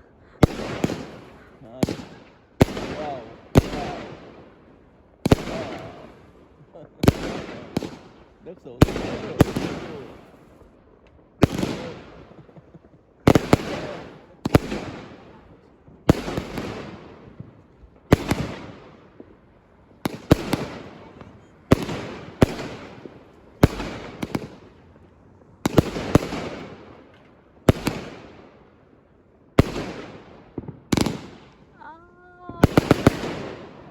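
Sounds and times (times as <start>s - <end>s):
fireworks banging: 0.0s - 33.9s
fireworks crackle: 0.0s - 33.9s.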